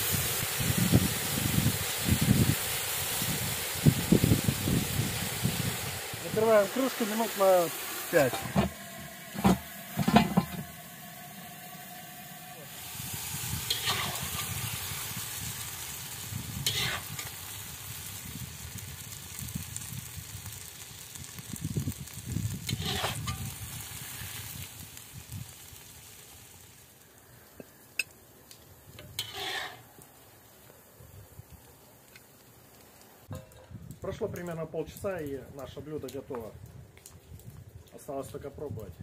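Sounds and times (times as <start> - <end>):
chicken wings sizzling in sauce: 0.0 - 33.4
metal spatula scraping a pot: 8.2 - 10.7, 13.7 - 14.6, 16.6 - 17.3, 22.7 - 23.5, 29.0 - 29.8.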